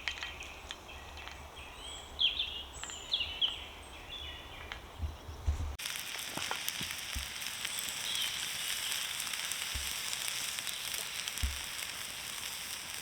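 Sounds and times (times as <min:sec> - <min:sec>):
fire crackling and spitting: 0:05.4 - 0:13.0
food sizzling on a griddle: 0:05.8 - 0:13.0.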